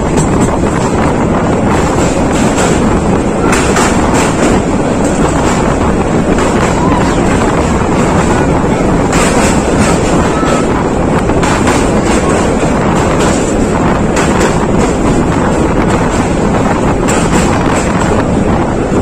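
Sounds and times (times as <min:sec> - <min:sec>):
train running noise: 0:00.0 - 0:19.0
wind buffeting microphone: 0:00.0 - 0:19.0.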